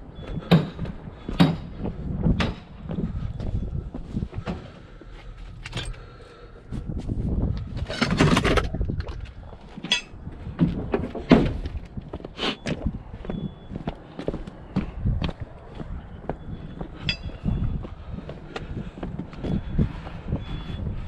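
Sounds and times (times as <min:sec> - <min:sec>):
knocks and clattering: 0:00.4 - 0:02.8.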